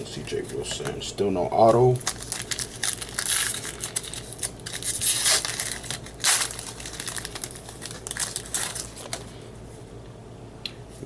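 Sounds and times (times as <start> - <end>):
foil wrappers crinkling: 1.6 - 9.5.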